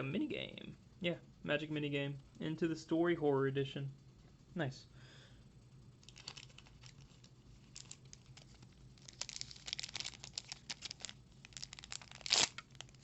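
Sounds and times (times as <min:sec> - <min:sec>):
foil wrapper crinkling: 0:06.0 - 0:13.0
cards being shuffled: 0:06.1 - 0:13.0.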